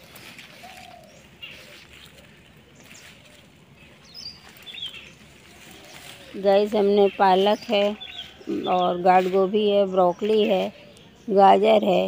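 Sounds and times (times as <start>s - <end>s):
birds chirping faintly: 0.0s - 12.0s
rustling of plants pulled up: 0.0s - 12.0s
short high bird calls: 0.4s - 6.4s, 7.9s - 9.0s.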